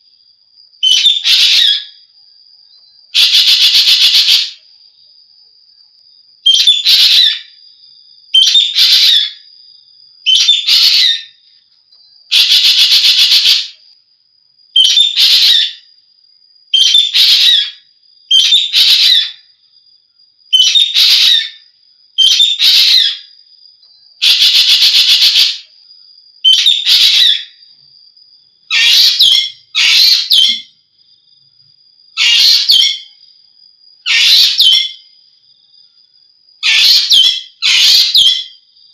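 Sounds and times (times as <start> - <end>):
starling shrill calls: 0.8 - 1.9, 3.2 - 4.6, 6.5 - 7.5, 8.4 - 9.4, 10.3 - 11.3, 12.3 - 13.8, 14.8 - 15.8, 16.8 - 19.4, 20.5 - 21.6, 22.2 - 23.2, 24.2 - 25.6, 26.4 - 27.5, 28.7 - 30.7, 32.2 - 33.1, 34.1 - 35.0, 36.6 - 38.5
faint high whine: 1.8 - 3.1.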